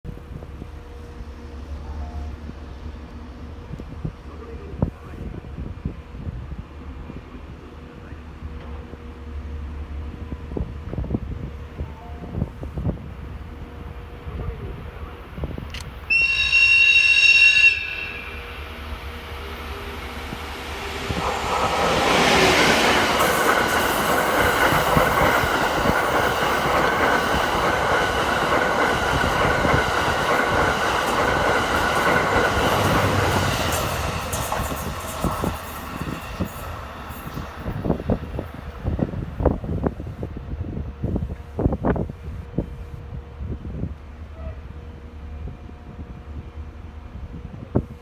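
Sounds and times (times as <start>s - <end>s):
train wheels rumbling: 8.4s - 48.0s
locomotive whistle blast: 16.1s - 18.6s.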